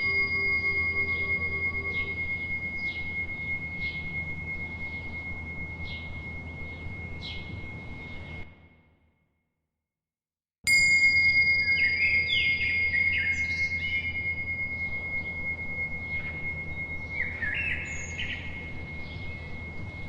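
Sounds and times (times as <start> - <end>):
birds chirping: 0.0 - 5.1, 11.6 - 19.6
bell ringing high thin tone: 0.0 - 8.8, 10.7 - 20.0.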